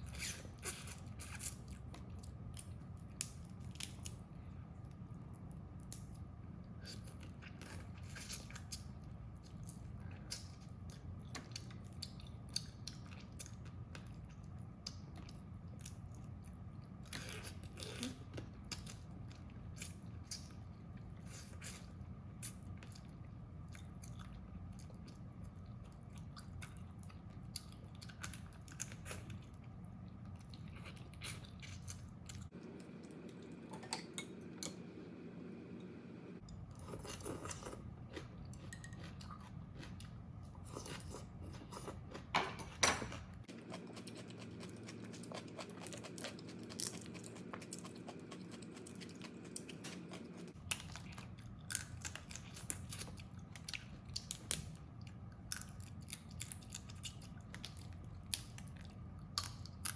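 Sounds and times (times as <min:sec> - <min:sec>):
low hum: 0:32.1 - 0:38.1.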